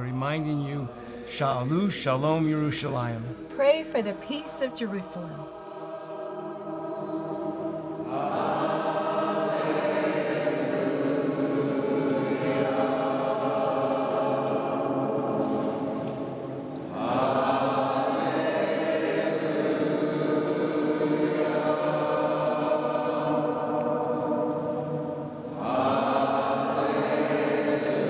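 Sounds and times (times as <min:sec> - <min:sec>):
choir singing held notes: 0:00.0 - 0:28.0.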